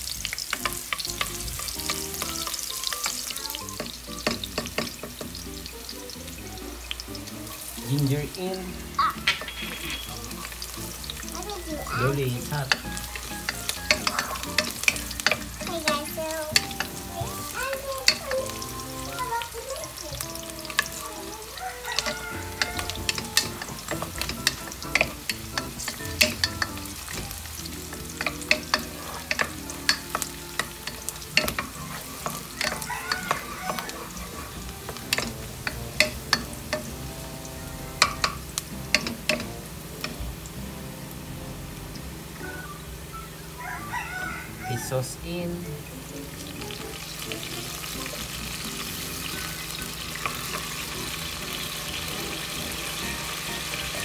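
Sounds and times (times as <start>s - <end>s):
food sizzling in hot oil: 0.0s - 54.0s
spatula knocking and scraping pot: 3.7s - 5.4s, 12.6s - 18.6s, 21.9s - 37.0s, 37.9s - 40.3s.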